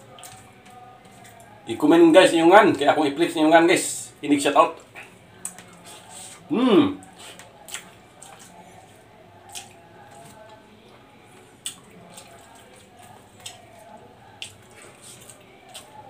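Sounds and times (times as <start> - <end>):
person chewing rice: 0.0 - 1.5, 4.8 - 16.0.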